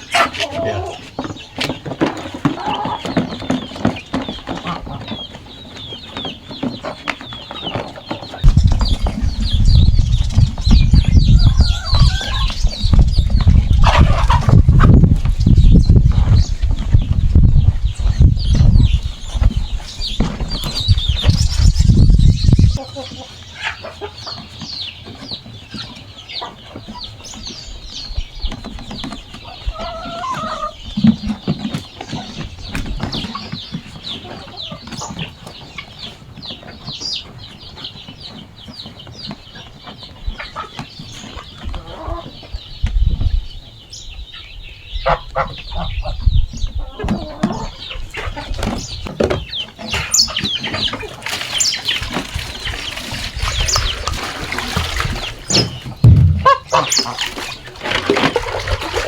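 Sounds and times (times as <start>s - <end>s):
chickens clucking: 0.0s - 59.0s
low knocks: 55.7s - 56.8s.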